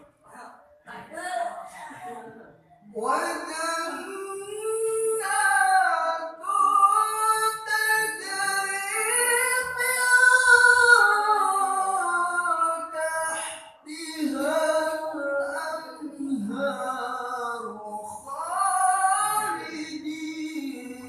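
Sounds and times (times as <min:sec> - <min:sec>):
person reciting melodically: 0:01.4 - 0:21.0.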